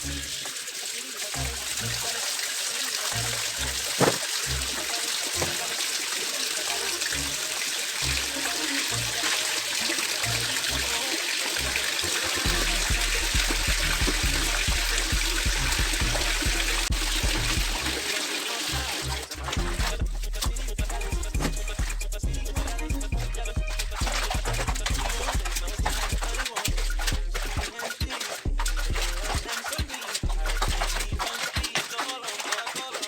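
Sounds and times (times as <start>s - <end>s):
water running and splashing: 0.0s - 33.0s
background music with bass beat: 10.2s - 18.1s, 18.7s - 31.8s.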